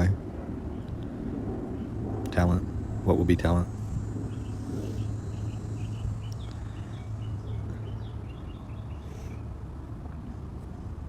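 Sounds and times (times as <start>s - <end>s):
steady low rumble: 0.0s - 11.0s
small bird chirping: 3.6s - 9.5s.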